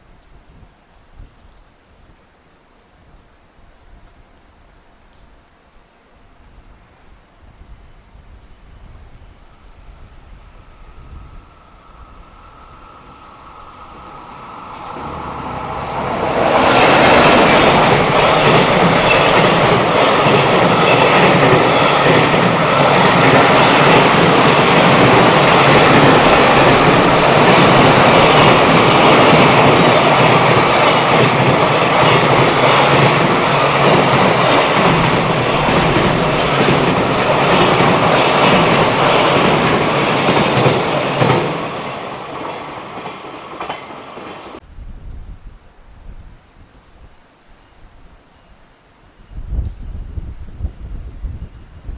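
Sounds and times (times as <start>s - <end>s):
freight train wheels clattering: 14.1s - 44.6s.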